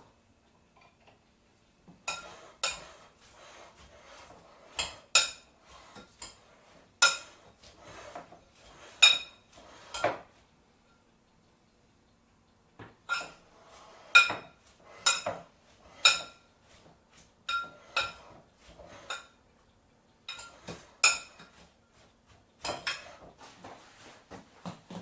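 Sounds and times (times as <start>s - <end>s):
cutlery clinking against dishes: 2.0s - 3.0s, 4.7s - 7.4s, 9.0s - 10.2s, 13.1s - 13.4s, 14.1s - 16.5s, 17.5s - 18.4s, 20.3s - 21.7s, 22.6s - 23.3s.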